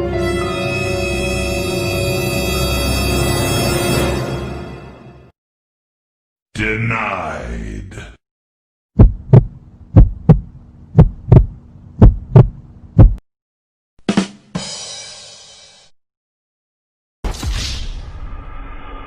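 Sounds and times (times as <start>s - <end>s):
heartbeat thumps: 9.0s - 13.2s.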